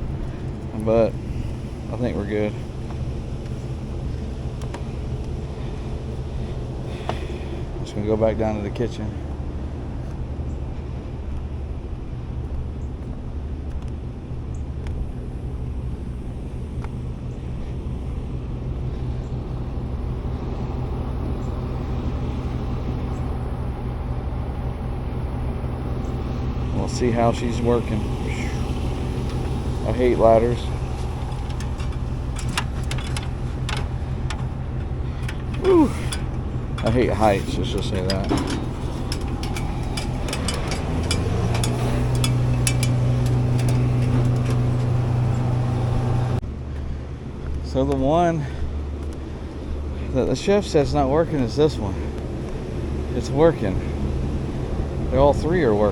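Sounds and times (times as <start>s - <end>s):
hvac fans and motors humming: 0.0s - 55.9s
sharp clicks and knocks: 30.8s - 45.1s.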